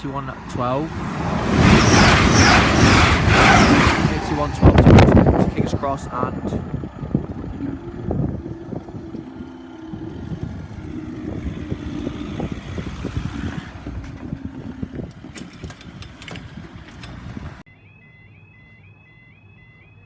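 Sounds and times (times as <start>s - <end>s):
diesel train engine hum: 0.0s - 17.7s
train wheels clattering on rails: 13.9s - 17.6s.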